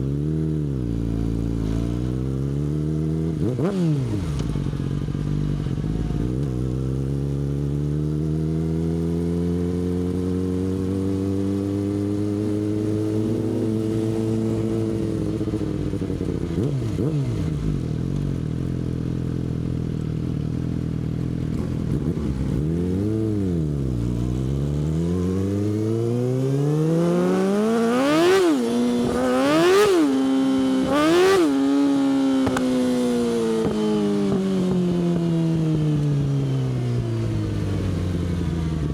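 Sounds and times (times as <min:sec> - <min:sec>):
sport bike engine: 0:00.0 - 0:38.9.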